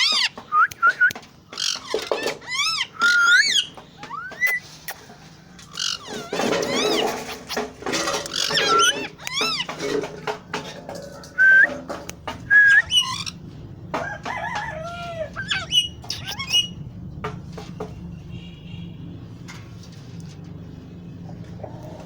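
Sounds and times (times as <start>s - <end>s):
parrot whistling: 3.0s - 4.6s, 11.4s - 11.7s, 12.5s - 13.4s, 15.4s - 16.8s.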